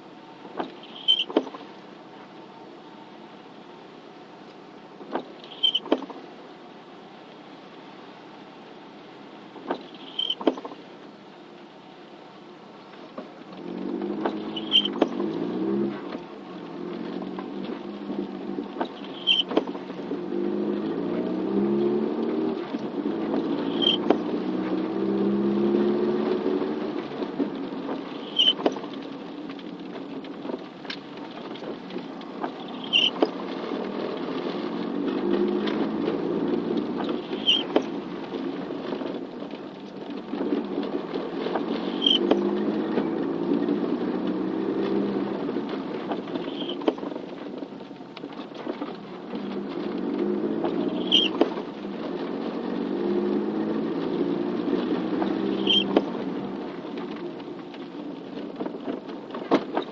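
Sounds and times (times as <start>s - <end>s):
rain: 0.0s - 59.9s
short high squeak: 0.8s - 1.5s, 5.4s - 6.0s, 9.8s - 10.6s, 14.4s - 15.0s, 19.0s - 19.6s, 23.6s - 24.1s, 28.2s - 28.6s, 32.6s - 33.2s, 37.2s - 37.8s, 41.9s - 42.3s, 46.4s - 46.8s, 50.9s - 51.4s, 55.5s - 56.0s.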